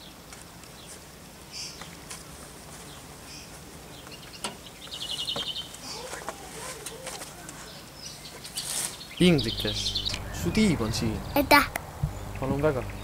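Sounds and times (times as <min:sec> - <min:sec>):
bird chirps: 0:07.7 - 0:13.0
bird trill: 0:08.0 - 0:11.4.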